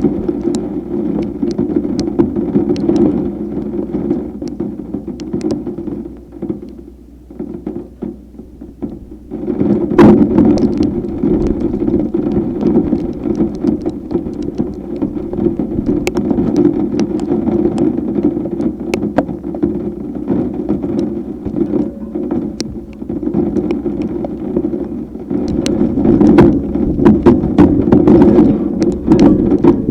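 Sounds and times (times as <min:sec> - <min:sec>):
heavy rain: 0:00.0 - 0:06.4, 0:08.3 - 0:29.9
wind noise: 0:08.4 - 0:29.9.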